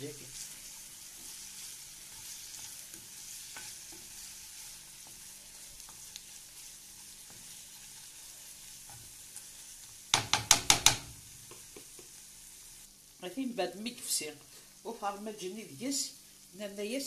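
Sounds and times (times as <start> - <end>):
wooden spatula stirring in pan: 0.0 - 12.4
onions sizzling in oil: 0.0 - 17.0
sharp knocks: 10.2 - 11.1.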